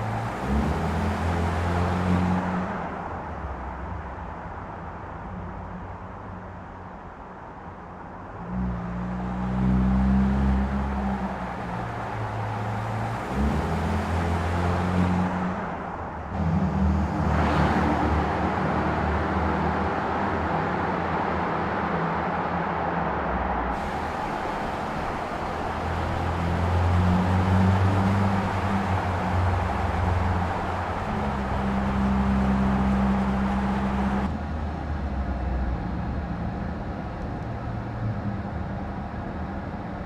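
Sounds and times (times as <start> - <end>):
road noise: 0.0 - 40.0
vehicle passing by: 9.2 - 34.3
car engine running: 23.8 - 34.3.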